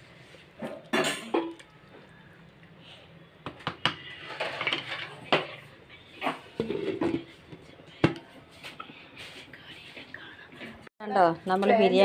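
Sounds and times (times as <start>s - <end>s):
metal cookware clattering: 0.6s - 1.6s, 3.9s - 7.3s.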